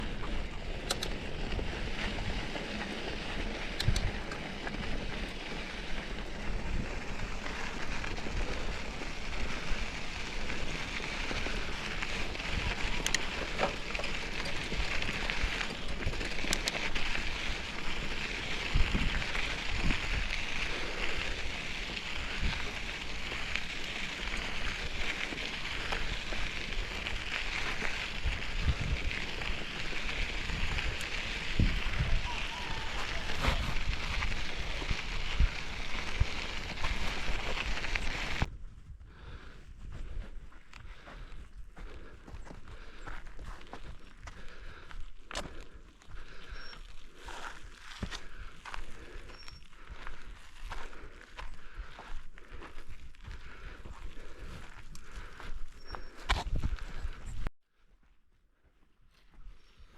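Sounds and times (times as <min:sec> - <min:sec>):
sharp clicks from bike: 0:00.0 - 0:32.4
bike tyres crackling on gravel: 0:00.0 - 0:57.5.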